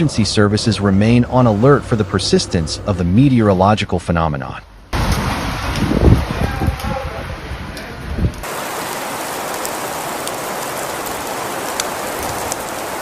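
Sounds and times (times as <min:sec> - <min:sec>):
wind rumbling on microphone: 0:04.9 - 0:13.0
heavy rain: 0:05.0 - 0:13.0.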